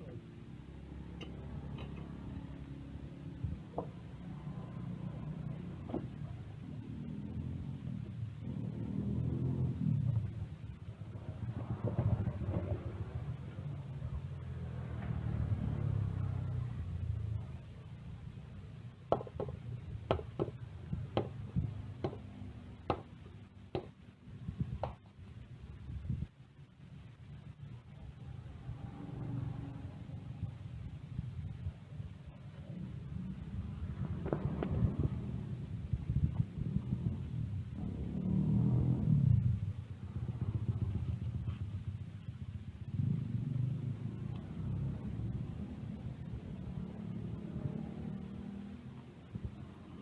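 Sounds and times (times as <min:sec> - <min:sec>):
low background rumble: 0:00.0 - 0:50.0.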